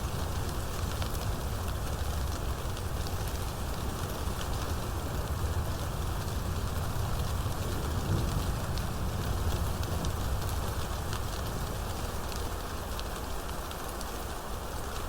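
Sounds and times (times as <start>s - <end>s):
sharp ticks of raindrops: 0.0s - 15.0s
steady rain falling: 0.0s - 15.0s.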